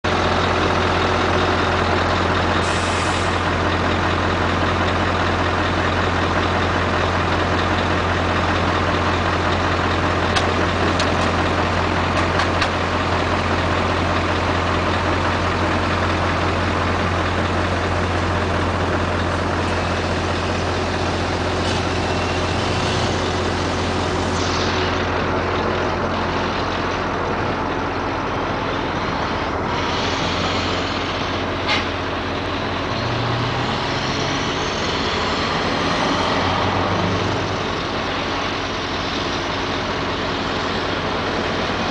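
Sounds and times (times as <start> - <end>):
diesel truck engine idling: 0.0 - 41.9.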